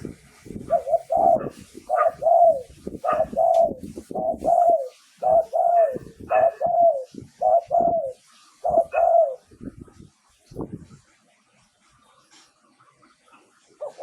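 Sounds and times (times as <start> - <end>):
dove cooing: 0.6 - 9.5, 13.8 - 14.0.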